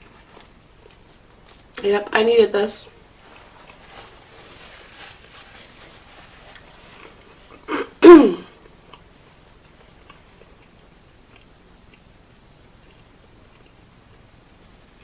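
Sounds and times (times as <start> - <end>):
woman clearing her throat: 7.7 - 8.6.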